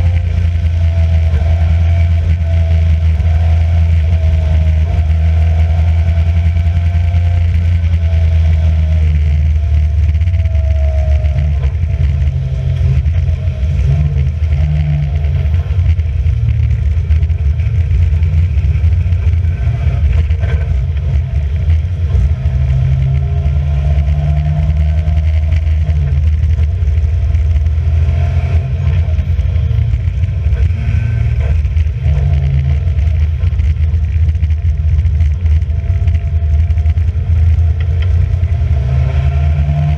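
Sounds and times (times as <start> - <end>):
racing car engine running hard: 0.0 - 39.9.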